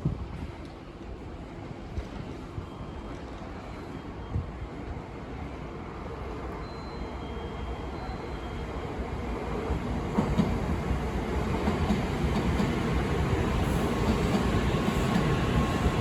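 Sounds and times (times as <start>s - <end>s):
train wheels rumbling on rail: 8.6s - 16.0s.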